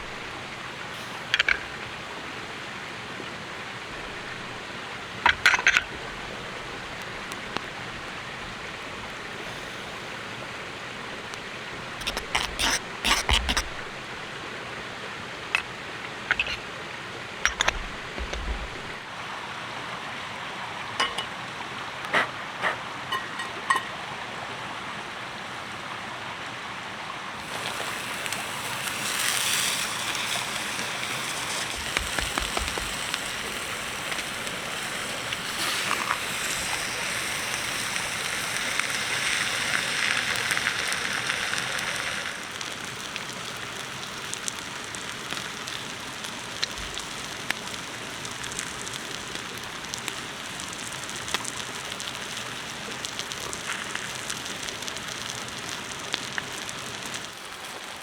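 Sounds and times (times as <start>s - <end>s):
campfire crackling and hissing: 0.0s - 58.0s
sharp pops from fire: 28.2s - 42.4s.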